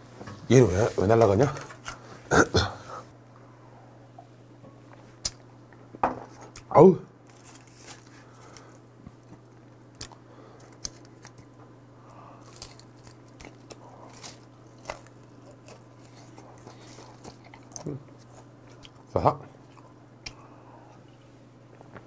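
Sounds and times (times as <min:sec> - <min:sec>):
man chewing crunchy snack: 0:08.0 - 0:21.0.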